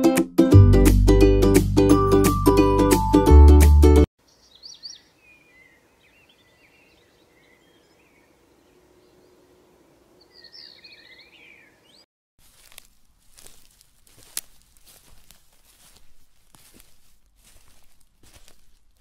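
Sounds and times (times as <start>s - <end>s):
ukulele music: 0.0s - 4.1s
faint birdsong chirps: 4.2s - 12.1s.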